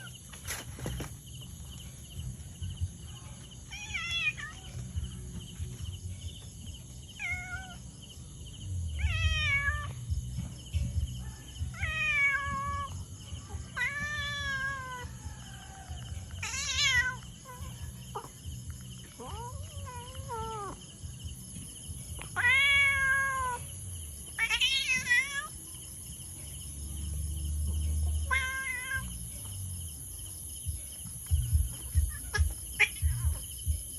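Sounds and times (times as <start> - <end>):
cat meowing: 7.2 - 7.8, 9.0 - 10.0, 11.7 - 12.9, 13.7 - 15.1, 16.4 - 18.3, 19.2 - 20.8, 22.3 - 23.7, 24.4 - 25.5, 28.2 - 29.1.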